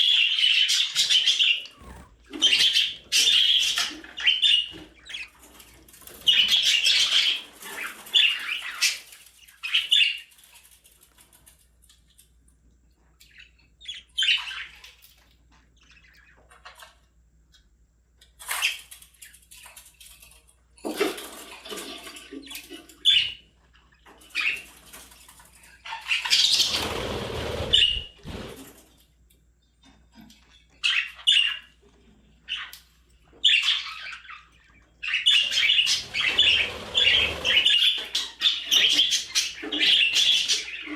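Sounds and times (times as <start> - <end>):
budgerigars chirping: 0.0 - 10.4, 13.3 - 14.9, 23.0 - 23.4, 25.8 - 28.2, 30.8 - 31.8, 32.4 - 40.9.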